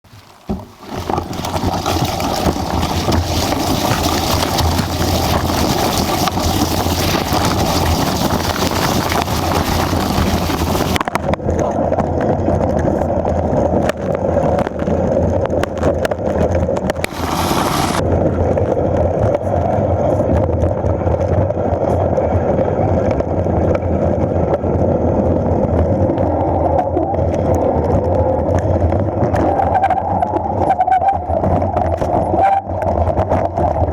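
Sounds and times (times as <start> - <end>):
wind rumble on microphone: 0.1 - 33.9
bike knocking over bumps: 0.2 - 11.0.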